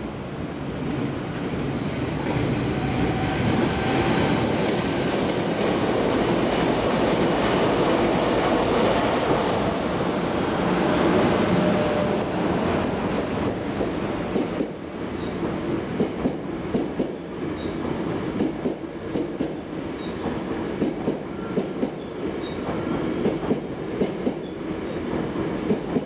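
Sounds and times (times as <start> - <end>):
electric locomotive rumbling past: 1.0 - 16.0.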